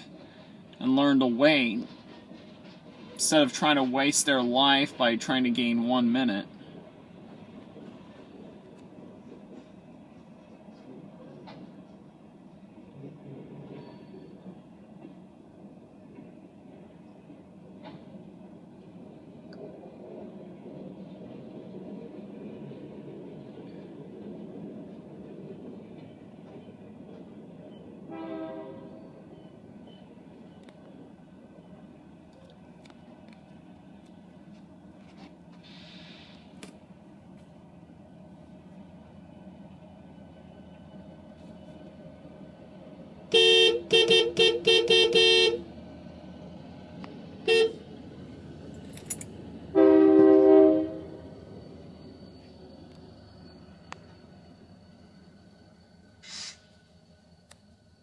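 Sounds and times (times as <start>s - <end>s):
train rolling past: 0.0s - 58.0s
locomotive horn blast: 28.1s - 29.0s, 43.3s - 45.7s, 47.4s - 47.9s, 49.7s - 51.2s.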